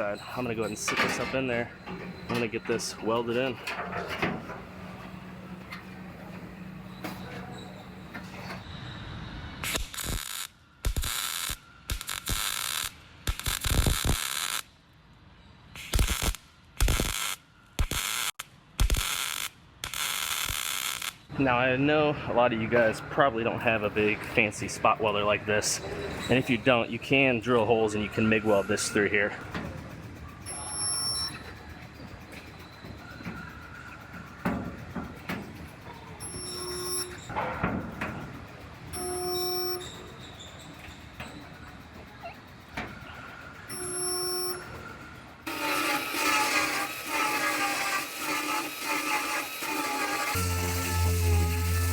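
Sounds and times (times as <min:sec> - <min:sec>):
spot welder hissing: 0:09.6 - 0:14.6, 0:15.8 - 0:21.2, 0:45.4 - 0:51.9.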